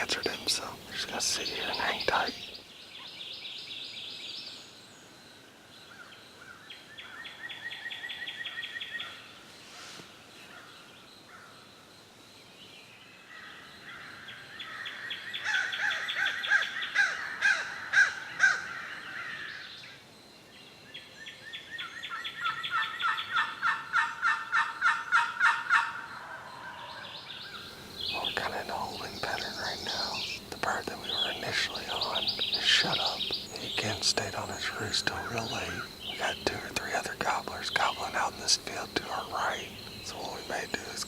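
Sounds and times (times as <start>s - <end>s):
turkeys rattling calls: 27.8s - 41.0s.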